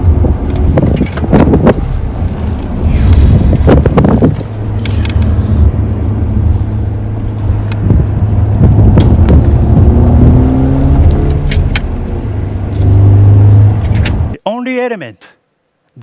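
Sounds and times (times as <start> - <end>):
synthesised engine drone: 1.6 - 14.4.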